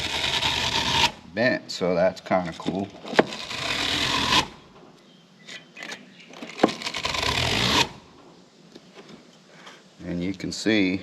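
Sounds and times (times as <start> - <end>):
brush scraping metal fins: 0.0 - 1.2, 2.2 - 4.5.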